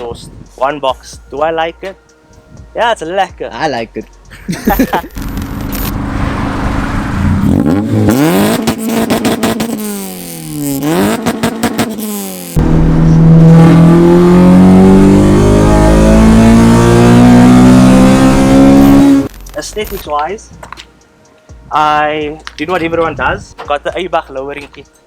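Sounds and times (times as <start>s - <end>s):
car engine revving: 5.2s - 19.3s.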